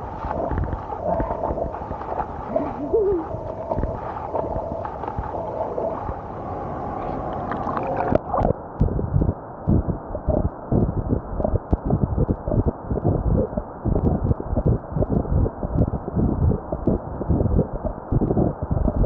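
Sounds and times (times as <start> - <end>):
water splashing and gurgling: 0.0 - 8.6.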